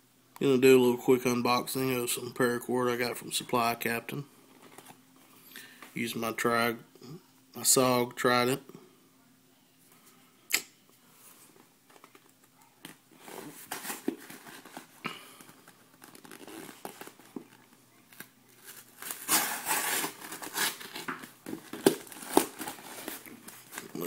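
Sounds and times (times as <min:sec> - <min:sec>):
plastic crinkling: 0:13.2 - 0:24.0
packaging cutting and tearing: 0:18.2 - 0:21.1.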